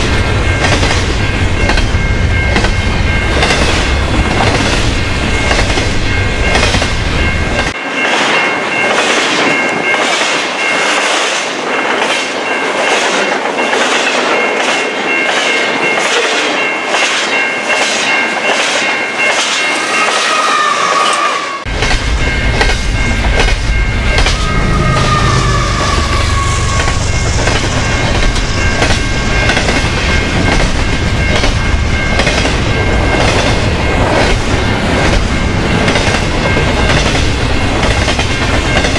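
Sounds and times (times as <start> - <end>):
wheels clacking over rail joints: 0.0 - 19.8
freight train passing: 0.0 - 38.9
locomotive passing: 0.0 - 38.9.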